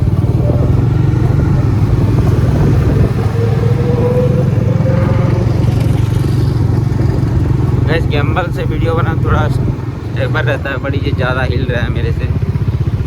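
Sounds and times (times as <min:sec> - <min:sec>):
faint rising tone: 0:00.0 - 0:07.5
motorcycle engine running: 0:00.0 - 0:13.0.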